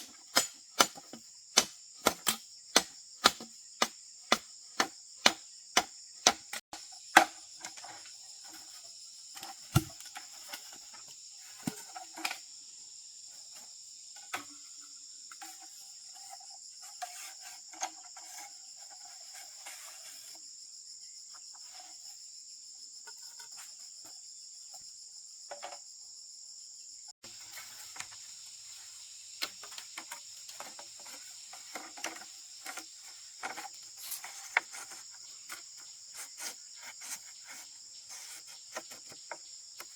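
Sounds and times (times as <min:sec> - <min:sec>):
high-pitched insect chorus: 0:00.0 - 0:39.9
knocks and clatter of hand work: 0:29.4 - 0:39.9.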